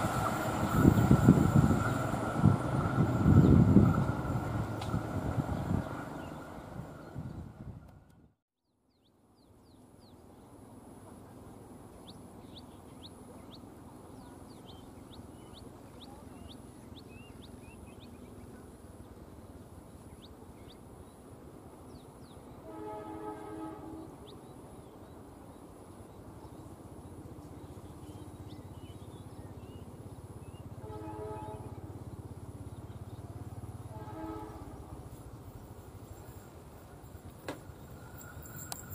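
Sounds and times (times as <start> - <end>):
birds chirping: 5.3 - 7.6, 8.7 - 36.5
high pulsing insect call: 8.9 - 22.7, 23.8 - 38.9
distant train horn chord: 22.5 - 24.4, 30.6 - 35.3.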